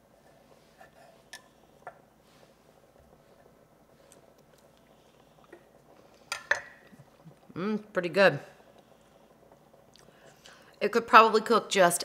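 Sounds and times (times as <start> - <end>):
faint chewing: 0.9 - 7.6, 8.5 - 10.8.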